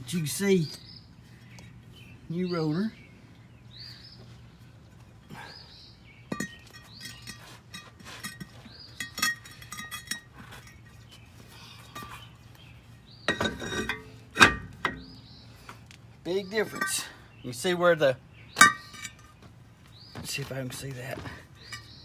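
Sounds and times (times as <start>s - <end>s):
steel brake rotor clanking: 6.2s - 11.1s, 13.1s - 15.4s, 16.6s - 17.2s, 18.6s - 19.4s, 21.6s - 22.0s.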